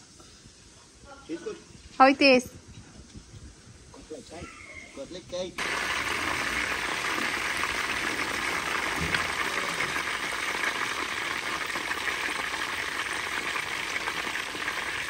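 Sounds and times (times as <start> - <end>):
chicken frying in hot oil: 5.6 - 15.0.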